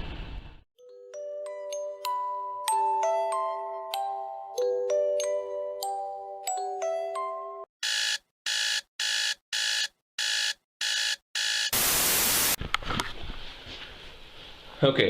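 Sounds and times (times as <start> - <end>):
chiming mallet percussion music: 0.8 - 7.7
loud static hiss: 11.8 - 12.6.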